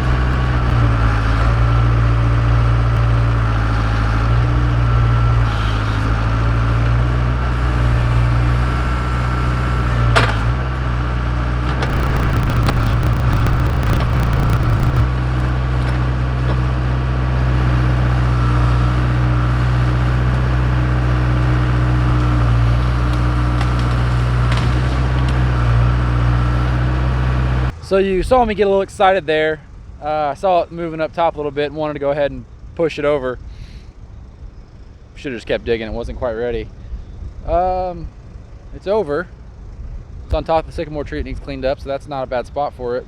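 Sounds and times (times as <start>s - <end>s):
crackling and snapping: 11.8s - 15.1s
wood cracking: 11.8s - 15.1s.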